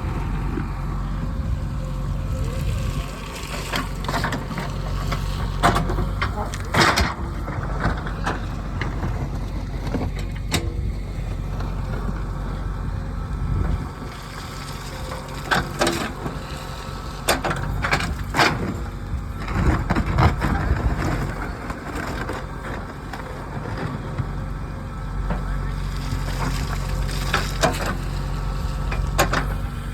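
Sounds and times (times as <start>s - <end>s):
diesel engine running: 0.0s - 29.9s
bucket scraping soil: 2.5s - 6.8s.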